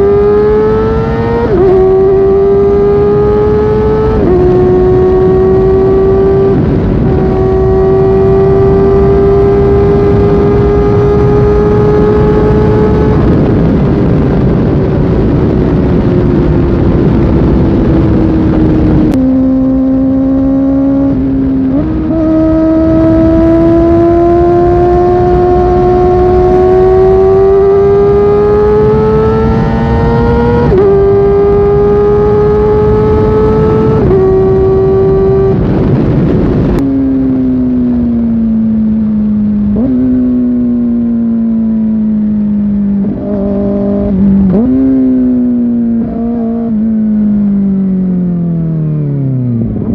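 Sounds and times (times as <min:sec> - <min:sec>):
motorcycle engine accelerating: 0:00.0 - 0:49.9.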